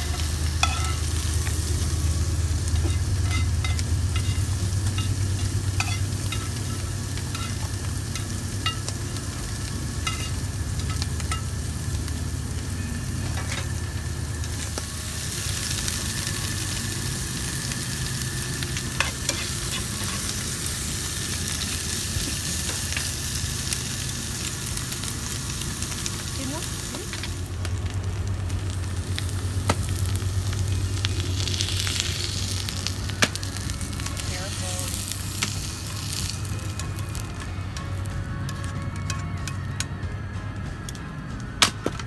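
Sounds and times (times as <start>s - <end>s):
metal utensil scraping griddle: 0.0s - 1.1s, 2.7s - 8.8s, 19.0s - 20.5s
mushrooms sizzling in frying pan: 0.0s - 39.1s
low steady hum: 0.0s - 42.0s.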